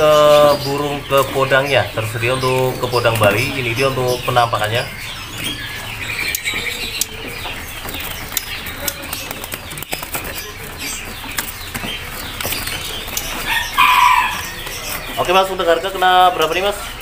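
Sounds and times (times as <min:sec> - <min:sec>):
birds chirping: 0:00.0 - 0:17.0
birds wings flapping: 0:06.2 - 0:17.0.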